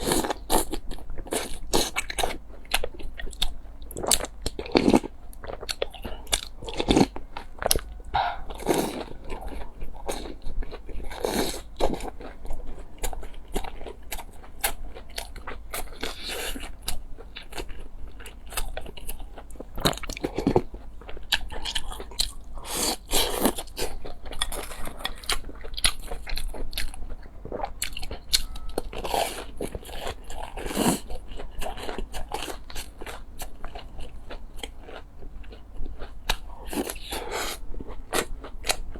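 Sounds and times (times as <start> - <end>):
person chewing crunchy food: 0.0 - 38.9
wet mouth clicks: 7.7 - 9.6.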